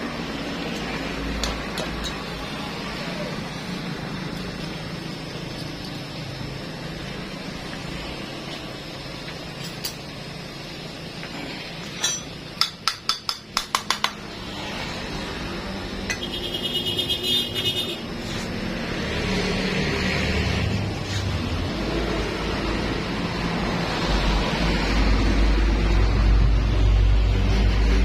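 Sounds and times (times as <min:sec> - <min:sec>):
metal tools clinking: 0:09.5 - 0:10.1, 0:11.8 - 0:12.8.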